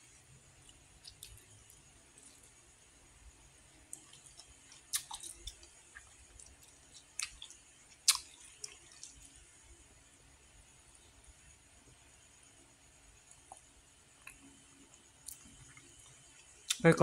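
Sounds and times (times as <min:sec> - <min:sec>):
person chewing: 0:00.6 - 0:01.5, 0:03.9 - 0:09.3.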